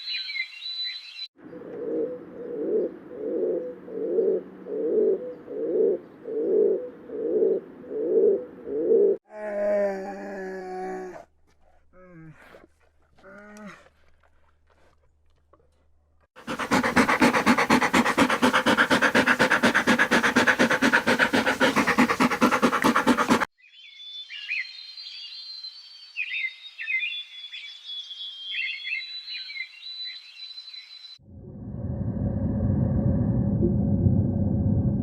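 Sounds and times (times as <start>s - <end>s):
animal panting fast: 16.4s - 23.5s.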